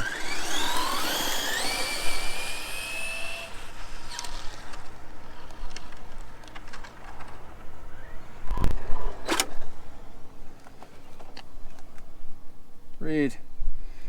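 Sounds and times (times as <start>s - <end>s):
electric motor whine: 0.0s - 10.4s.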